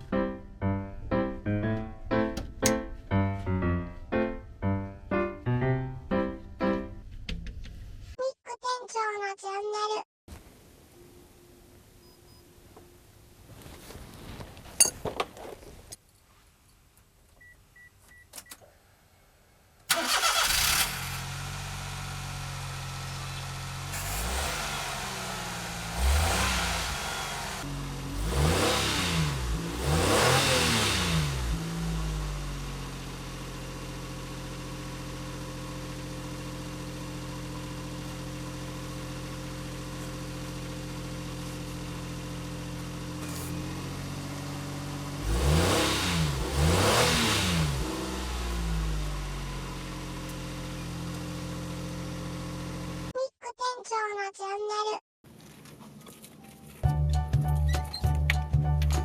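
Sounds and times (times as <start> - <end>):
van engine starting and revving: 19.9 - 53.2.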